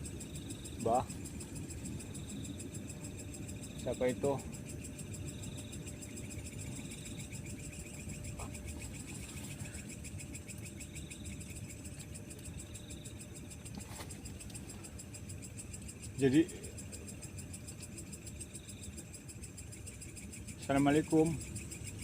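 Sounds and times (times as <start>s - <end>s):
crickets chirring: 0.0s - 22.0s
insect trills: 0.0s - 22.0s
low steady rumble: 0.0s - 22.0s.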